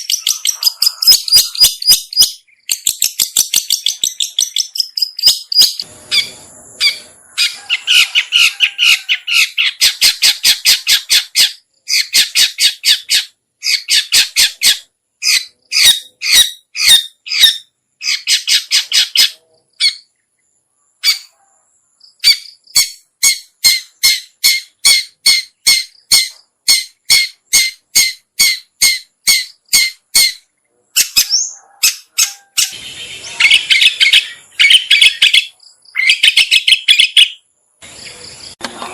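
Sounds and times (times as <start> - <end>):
bird scratchy chatter: 0.0 - 20.1, 31.0 - 38.9.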